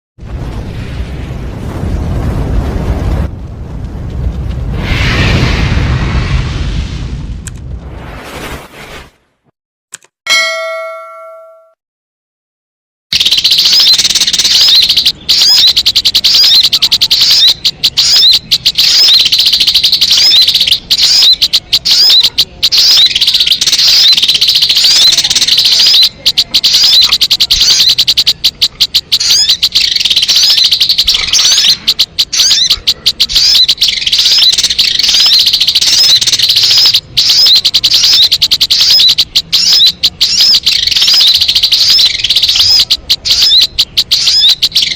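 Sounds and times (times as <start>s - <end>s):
short chime: 10.3s - 11.8s
bird chirps and trills: 13.1s - 44.9s.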